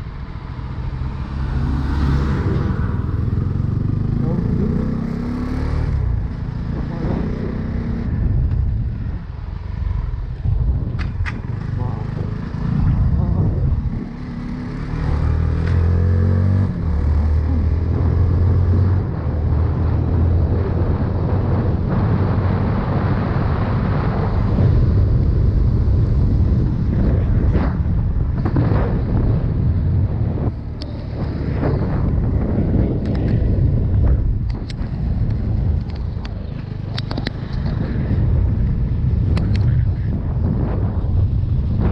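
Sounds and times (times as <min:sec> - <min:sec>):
wind buffeting microphone: 0:00.0 - 0:14.5, 0:16.2 - 0:41.9
motorcycle engine running: 0:00.1 - 0:05.4.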